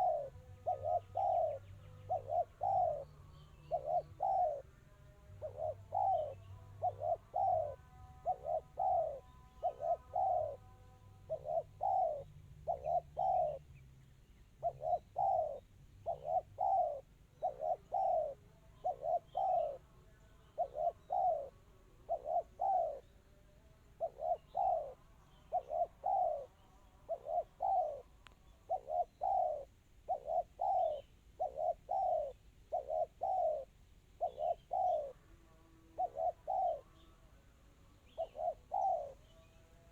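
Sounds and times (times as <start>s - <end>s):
dove cooing: 0.0s - 13.8s, 14.5s - 37.3s, 38.0s - 39.9s.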